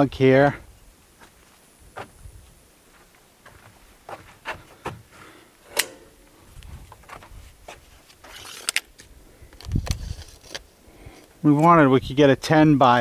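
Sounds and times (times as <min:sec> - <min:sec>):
rustling scrape: 0:07.2 - 0:10.8.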